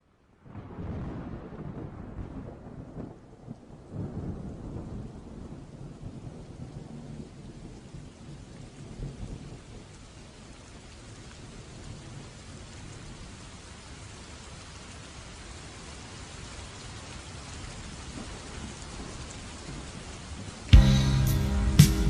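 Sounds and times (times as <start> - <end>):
steady rain: 0.0 - 22.0
thunder rumbling: 0.5 - 7.3.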